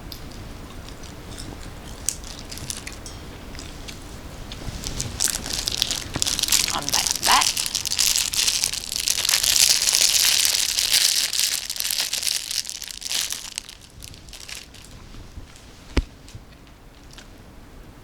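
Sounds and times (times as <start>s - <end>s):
plastic packaging crinkling: 2.0s - 3.0s, 4.4s - 15.7s.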